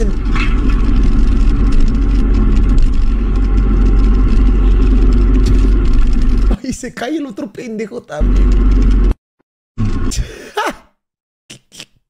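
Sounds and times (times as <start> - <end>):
motorcycle engine running: 0.0 - 6.6, 8.2 - 9.2.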